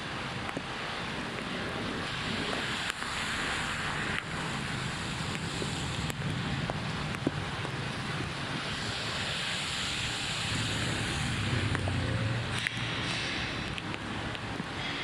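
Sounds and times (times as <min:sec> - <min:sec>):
heavy rain: 0:00.0 - 0:15.0
running floodwater: 0:00.0 - 0:15.0.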